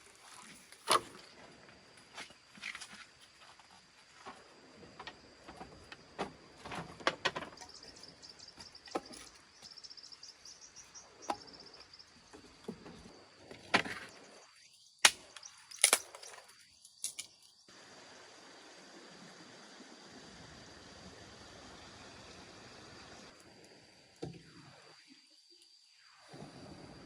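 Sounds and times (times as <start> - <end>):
rapid insect chirps: 7.4 - 27.0.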